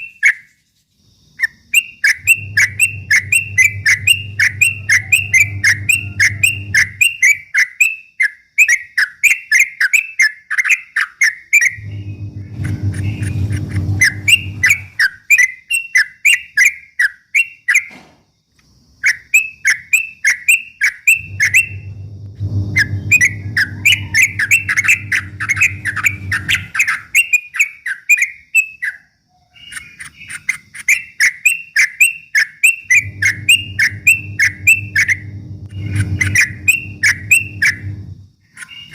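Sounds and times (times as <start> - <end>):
bird chattering song: 1.4 - 17.9, 19.0 - 22.0, 22.7 - 38.9
low hum: 2.2 - 7.3, 11.8 - 15.0, 21.2 - 26.8, 32.8 - 38.4.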